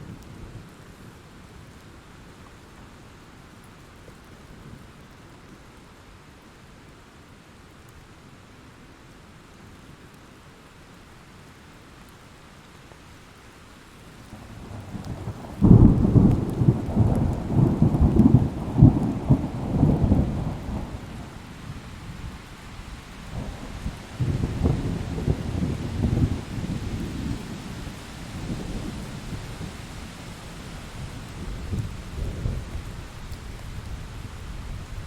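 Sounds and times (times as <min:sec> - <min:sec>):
steady rain: 0:00.0 - 0:35.0
low rolling thunder rumbles: 0:14.3 - 0:35.0
thunderclap: 0:23.3 - 0:27.6.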